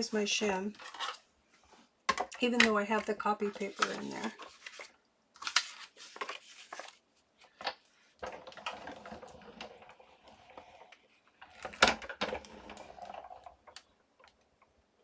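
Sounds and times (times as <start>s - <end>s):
plastic plates clacking: 2.1s - 4.9s.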